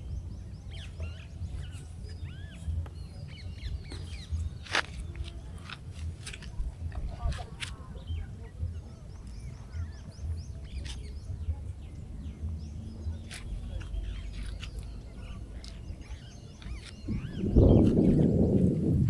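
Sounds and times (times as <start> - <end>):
small birds chirping: 0.0 - 19.0
low rumble: 17.0 - 19.0.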